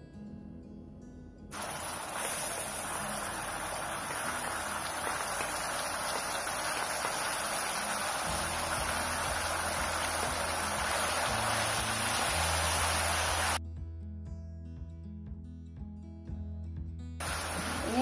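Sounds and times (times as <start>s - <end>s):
spice paste sizzling in oil: 1.5s - 13.6s, 17.2s - 18.0s.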